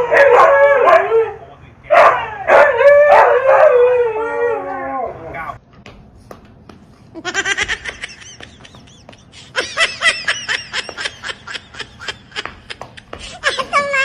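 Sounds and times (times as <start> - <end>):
person laughing hard: 7.2 - 14.0.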